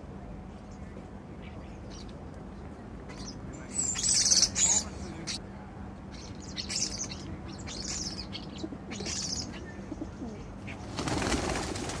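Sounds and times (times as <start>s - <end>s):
birds calling in scratchy bursts: 3.1s - 5.4s, 6.1s - 12.0s.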